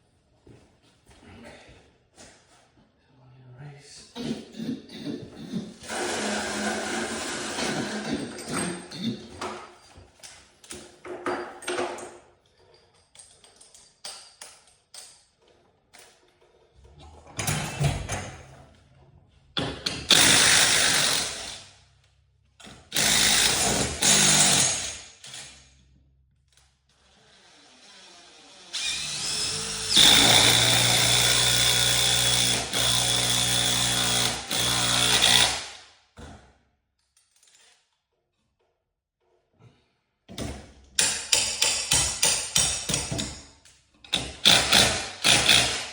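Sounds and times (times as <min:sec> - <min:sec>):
power drill whining: 0:05.8 - 0:08.6, 0:22.9 - 0:24.9, 0:27.0 - 0:35.6
metal tools clinking: 0:08.0 - 0:16.6.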